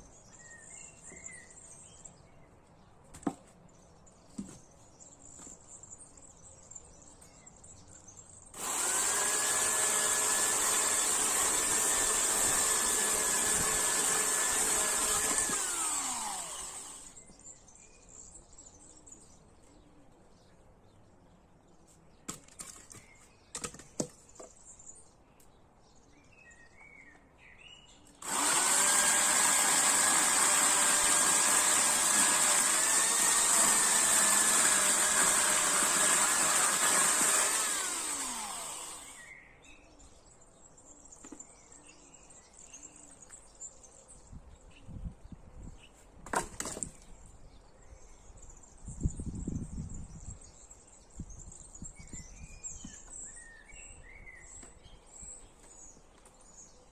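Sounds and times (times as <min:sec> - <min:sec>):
birds chirping: 0:00.0 - 0:56.9
chainsaw engine running: 0:08.6 - 0:17.2, 0:28.2 - 0:39.3.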